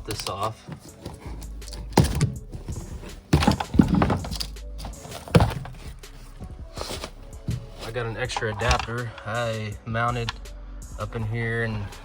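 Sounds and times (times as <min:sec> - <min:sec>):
background music: 0:00.0 - 0:12.0
knocks and thunks of a cover: 0:00.1 - 0:08.9.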